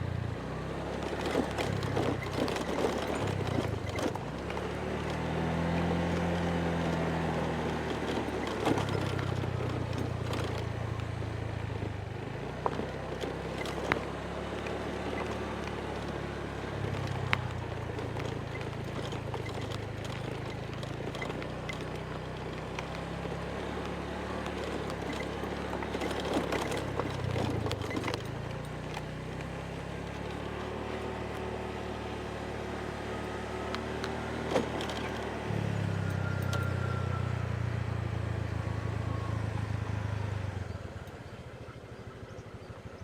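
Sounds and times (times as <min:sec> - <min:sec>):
motorbike engine running: 0:00.0 - 0:43.0
road and wind noise: 0:00.0 - 0:43.0.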